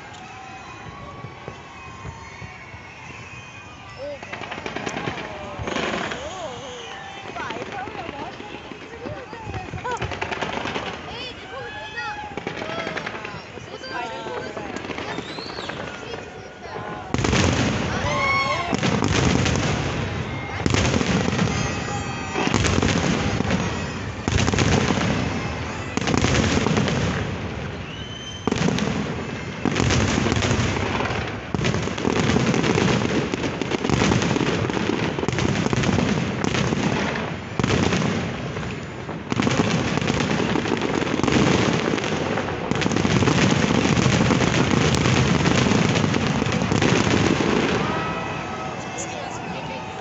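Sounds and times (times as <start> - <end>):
firework rising whistle: 0.0 - 9.2, 9.8 - 31.4, 42.8 - 50.0
fireworks booming and crackling: 0.0 - 50.0.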